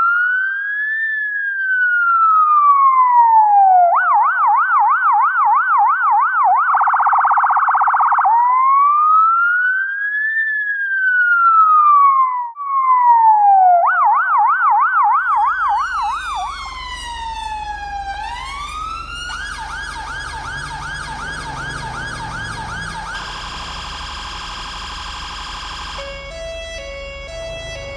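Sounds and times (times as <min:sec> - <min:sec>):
emergency vehicle siren: 0:00.0 - 0:27.9
low engine rumble: 0:15.4 - 0:27.9.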